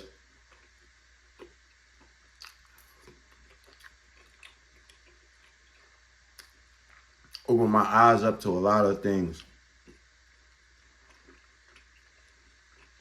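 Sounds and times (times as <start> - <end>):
faint chewing: 0.4 - 7.5, 9.3 - 13.0
soft mouth clicks and smacks: 1.4 - 7.5.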